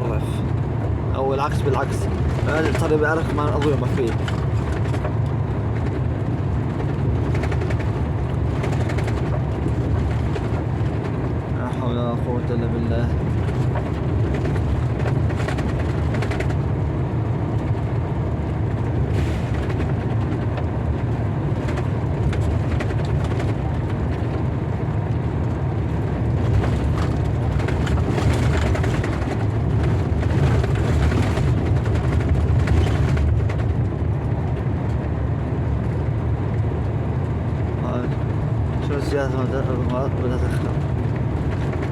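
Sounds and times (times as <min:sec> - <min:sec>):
car interior rumble: 0:00.0 - 0:41.9.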